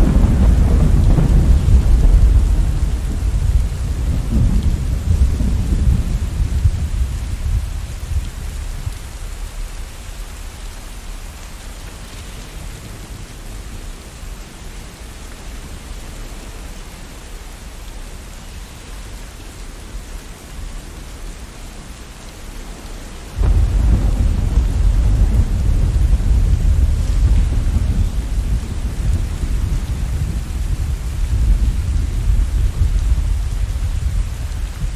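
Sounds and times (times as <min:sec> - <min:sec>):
thunder rumbling: 0:00.0 - 0:09.1, 0:23.3 - 0:34.9
steady rain falling: 0:00.0 - 0:34.9.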